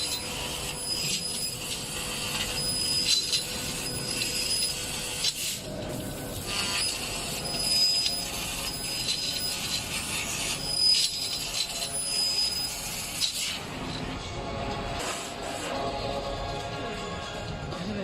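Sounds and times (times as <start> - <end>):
laser cutter hissing and crackling: 0.0 - 13.9.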